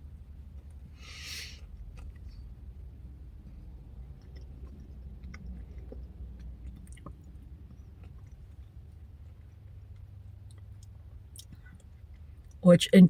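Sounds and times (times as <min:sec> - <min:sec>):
person chewing: 0:03.1 - 0:12.6.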